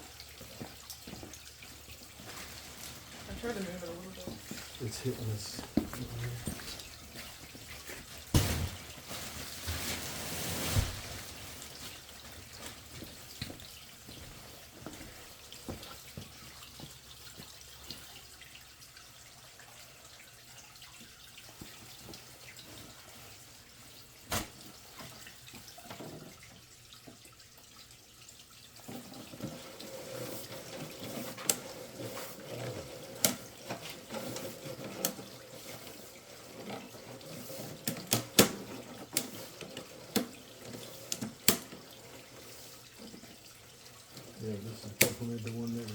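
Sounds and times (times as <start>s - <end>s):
water trickling through drain: 0.0s - 45.9s
sharp knocks: 8.3s - 8.8s.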